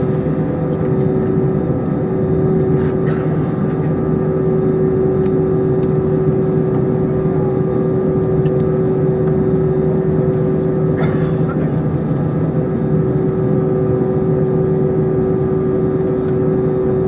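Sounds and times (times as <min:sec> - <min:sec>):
airplane cabin air rush: 0:00.0 - 0:01.4, 0:02.7 - 0:05.2
jet engines droning: 0:00.0 - 0:17.0.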